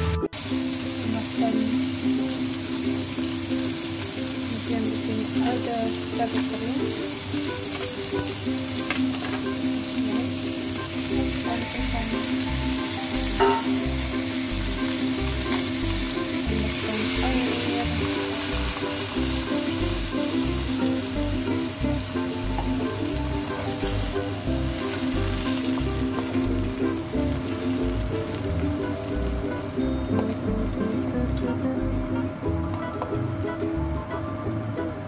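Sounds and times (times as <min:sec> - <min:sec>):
food sizzling in oil: 0:00.0 - 0:34.5.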